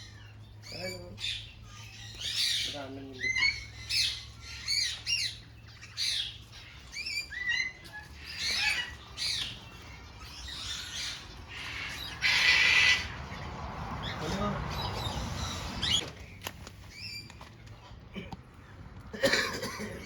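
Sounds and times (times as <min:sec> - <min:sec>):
parrots squawking: 0:00.0 - 0:16.0
harsh parrot screech: 0:11.8 - 0:13.1.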